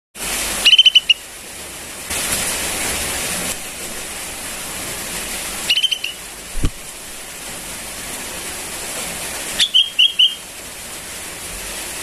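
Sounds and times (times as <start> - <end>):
bird chick begging chirps: 0.7 - 1.2, 5.7 - 6.2, 9.6 - 10.4.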